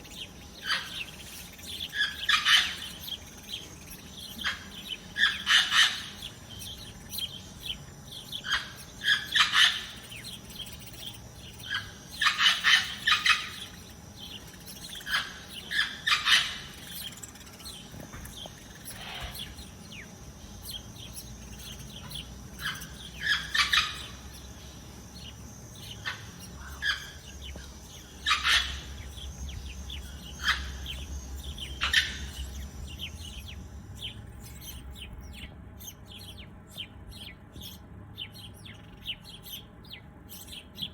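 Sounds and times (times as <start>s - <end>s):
small songbirds chirping: 0.0s - 40.9s.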